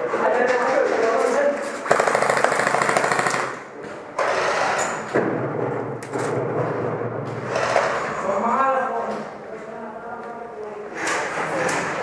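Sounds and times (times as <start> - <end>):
airsoft gun full-auto burst: 1.8 - 3.7.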